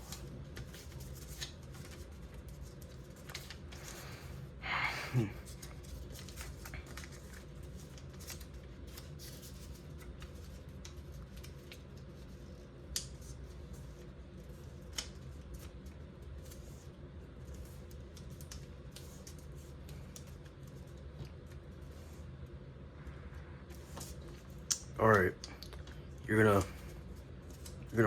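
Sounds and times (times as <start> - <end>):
paper being folded and creased: 0.0 - 4.4, 5.4 - 22.2, 23.7 - 25.2, 26.3 - 28.0
steady low hum: 0.0 - 28.0
paper snaps: 12.9 - 13.2, 14.9 - 15.2, 24.6 - 25.7.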